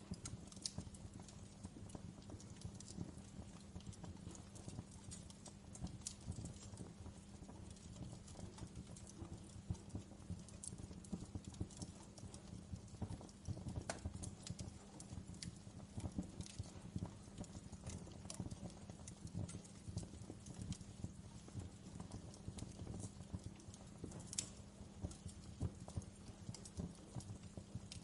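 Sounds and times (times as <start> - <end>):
low rumble of flames: 0.0 - 28.0
wood fire crackling: 0.0 - 28.0.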